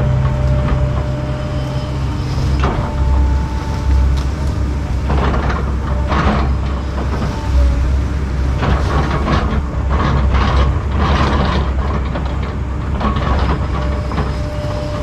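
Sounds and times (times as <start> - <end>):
heavy diesel machine running: 0.0 - 15.0
wood cracking and splintering: 0.0 - 15.0.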